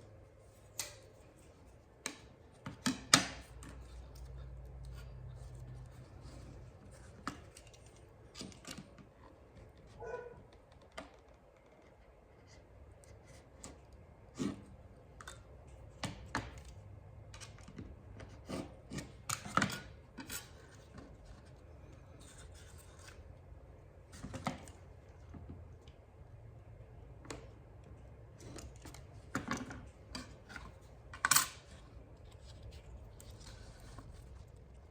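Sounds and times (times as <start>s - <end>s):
bark rustling: 10.0s - 10.4s.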